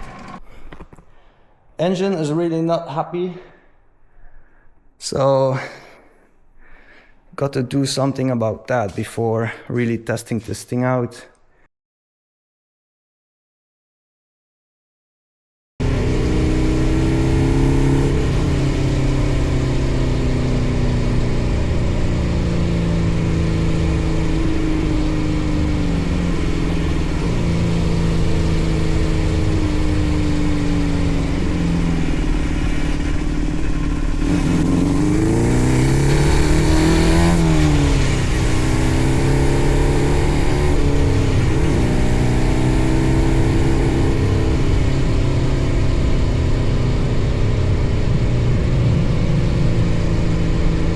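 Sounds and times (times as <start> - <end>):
go-kart engine revving: 15.8 - 50.9.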